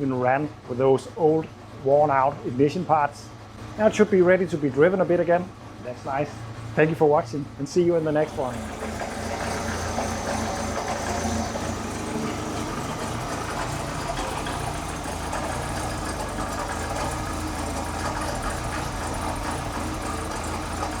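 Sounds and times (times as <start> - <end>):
car engine idling: 7.8 - 21.0.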